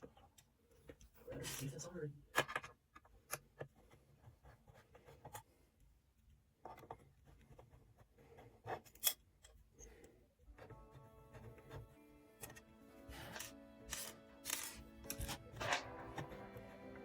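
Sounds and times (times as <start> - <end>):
music: 10.5 - 17.0.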